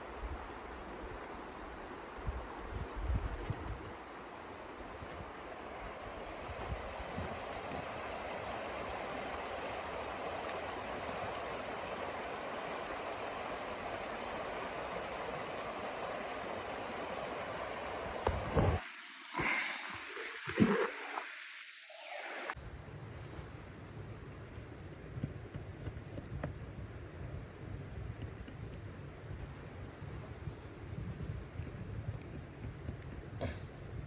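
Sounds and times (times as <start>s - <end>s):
rushing blizzard wind: 2.0s - 22.6s.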